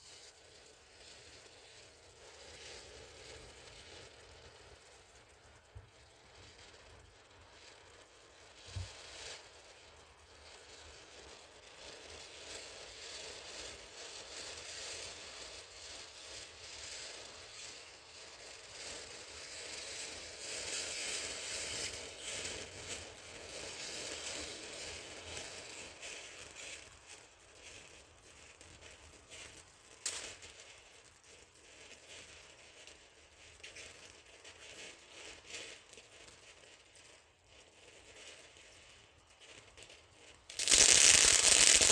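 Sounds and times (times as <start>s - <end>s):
firework crackling: 0.0s - 33.9s, 36.9s - 41.9s
firework fountain hissing: 40.5s - 41.9s
sharp pop: 40.5s - 41.9s.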